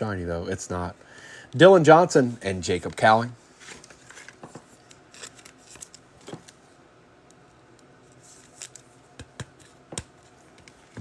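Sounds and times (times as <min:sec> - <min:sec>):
cards being flipped: 0:03.6 - 0:06.6, 0:08.1 - 0:10.9.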